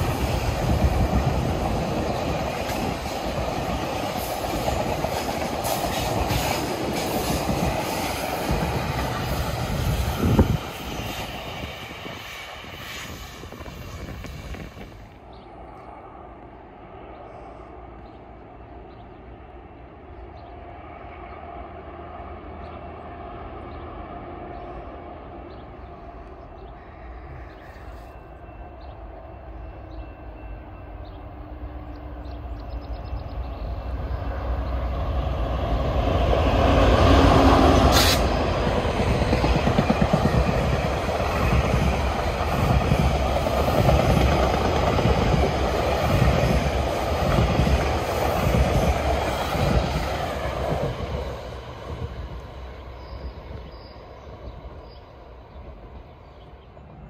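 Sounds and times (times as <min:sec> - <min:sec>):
diesel train rumbling past: 0:00.0 - 0:57.0.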